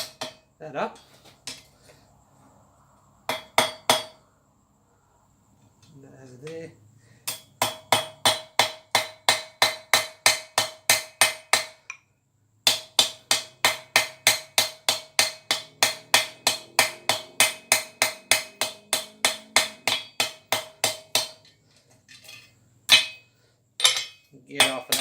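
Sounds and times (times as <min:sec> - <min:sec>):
hammer striking steel on anvil: 0:00.0 - 0:00.5, 0:03.3 - 0:04.2, 0:07.2 - 0:12.0, 0:12.6 - 0:21.6, 0:22.3 - 0:25.0.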